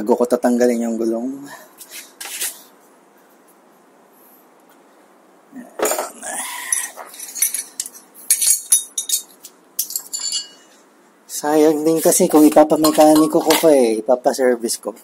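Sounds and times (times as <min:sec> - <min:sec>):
metal tools clinking: 0:05.8 - 0:10.8, 0:11.8 - 0:13.8.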